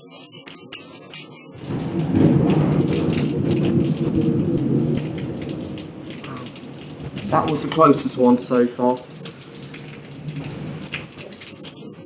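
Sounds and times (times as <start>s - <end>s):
heavy rain hiss: 1.6s - 12.0s
thunder rumble: 1.6s - 12.0s.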